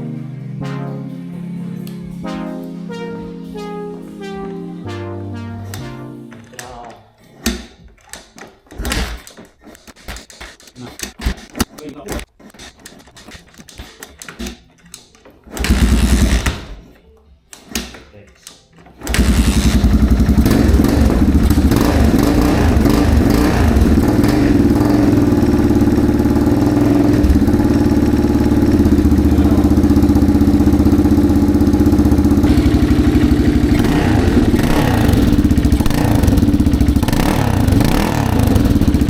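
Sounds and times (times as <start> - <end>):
motorcycle engine running: 19.2 - 39.0.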